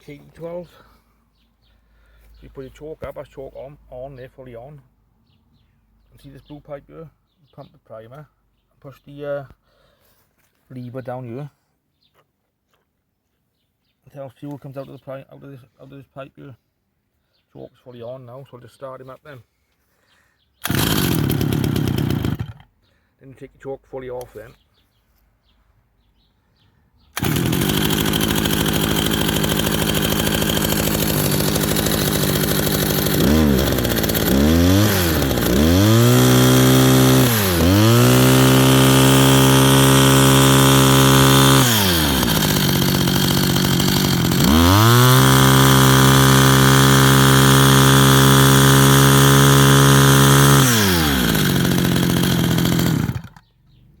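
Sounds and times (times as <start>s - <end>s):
strimmer engine revving: 20.6s - 22.7s, 27.2s - 53.4s.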